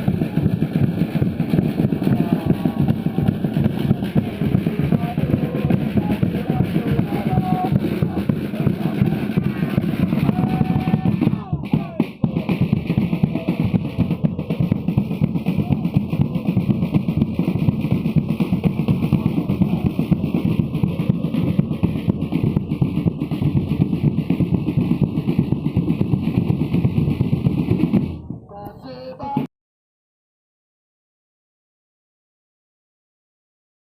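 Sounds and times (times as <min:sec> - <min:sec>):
drum-led music: 0:00.0 - 0:29.5.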